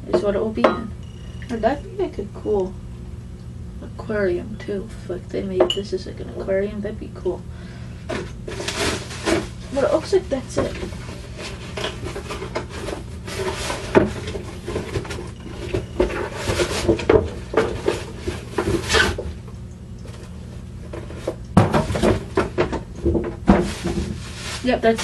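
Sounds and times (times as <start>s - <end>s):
steady low hum: 0.0s - 25.0s
cardboard and plastic packaging rustling: 8.0s - 25.0s.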